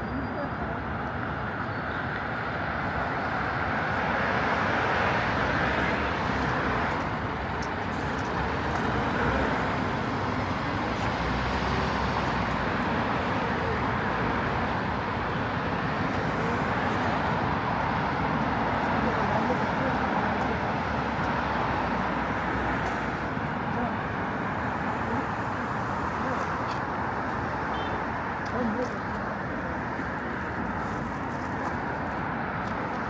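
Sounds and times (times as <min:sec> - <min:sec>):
road traffic passing: 0:00.0 - 0:33.0.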